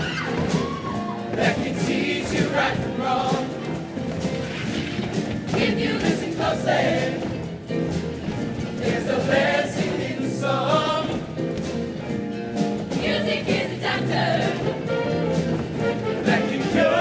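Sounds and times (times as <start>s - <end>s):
instrumental accompaniment: 0.1s - 17.0s
choir singing: 1.3s - 3.9s, 5.5s - 7.4s, 8.8s - 11.3s, 12.9s - 15.1s, 15.8s - 17.0s.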